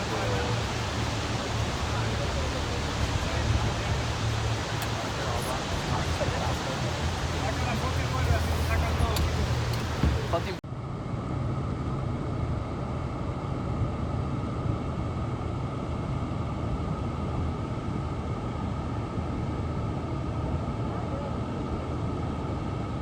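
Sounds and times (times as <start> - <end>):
boat motor running: 0.0 - 10.6
waterfall rushing: 0.0 - 10.6.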